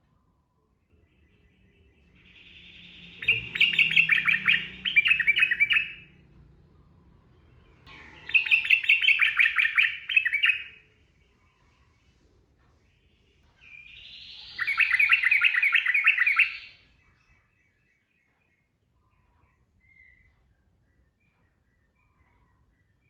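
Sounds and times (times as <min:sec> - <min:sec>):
bulbul chattering song: 0:01.0 - 0:06.2, 0:07.9 - 0:10.9, 0:13.8 - 0:16.9.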